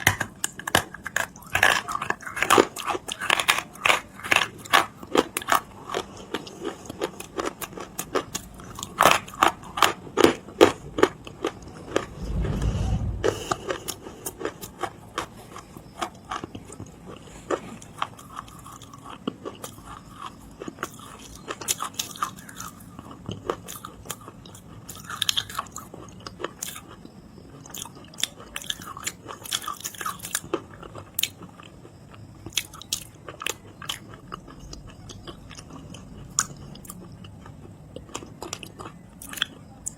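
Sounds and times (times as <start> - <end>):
chewing crunchy clay: 0.0 - 12.1, 13.6 - 39.9
low rumble: 11.6 - 14.2.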